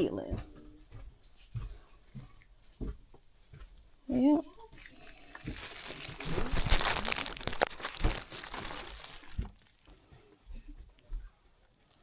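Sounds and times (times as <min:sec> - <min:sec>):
plastic packaging crinkling: 0:05.0 - 0:09.9.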